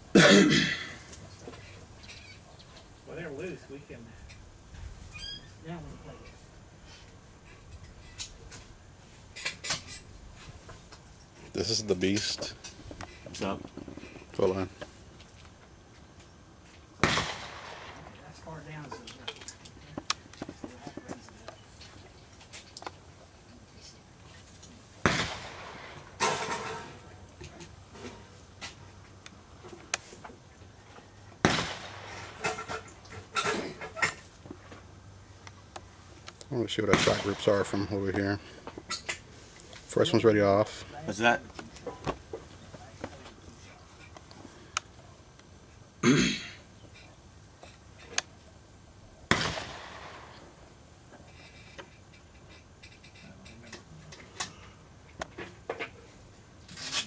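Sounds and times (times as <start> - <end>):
rifle shot: 17.0 - 18.2, 25.0 - 26.4, 31.4 - 32.6, 36.9 - 37.5, 49.3 - 50.5.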